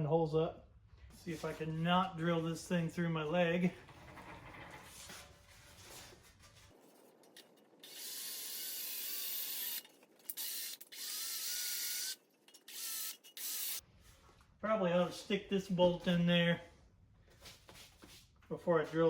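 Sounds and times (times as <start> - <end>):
electric drill boring: 7.8 - 13.8.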